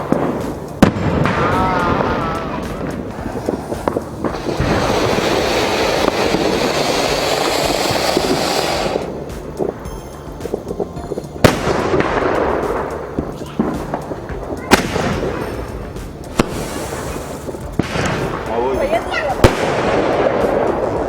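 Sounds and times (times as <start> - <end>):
loud firework bang: 0.0 - 9.9, 11.4 - 14.1, 14.7 - 18.5
fireworks hissing and crackling: 0.0 - 21.0
small firework pops: 0.0 - 21.0.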